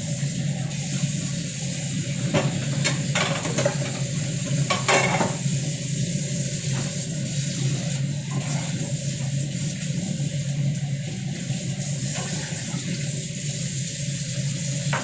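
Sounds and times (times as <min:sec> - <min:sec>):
soup pot hissing: 0:00.0 - 0:15.0
utensil scraping pot: 0:07.6 - 0:08.9.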